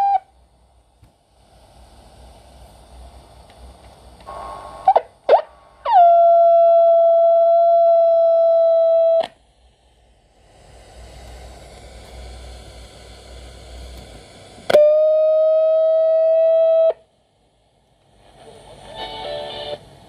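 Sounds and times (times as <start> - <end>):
whistle-like tone from speaker: 0.0 - 0.3, 4.4 - 9.3
faint hiss: 0.0 - 8.1, 9.1 - 20.0.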